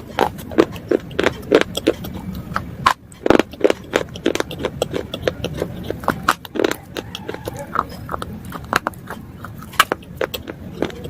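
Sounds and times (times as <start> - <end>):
chewing crunchy slate: 0.0 - 11.0.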